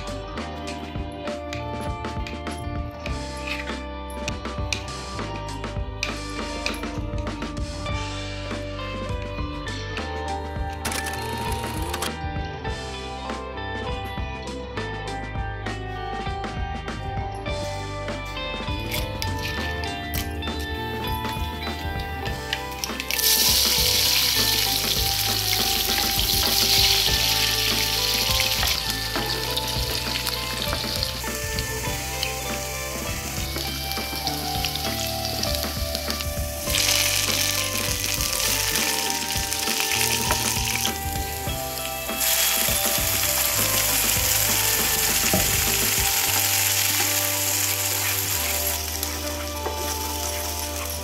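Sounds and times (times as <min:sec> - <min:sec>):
onions sizzling in hot oil: 0:22.3 - 0:51.0.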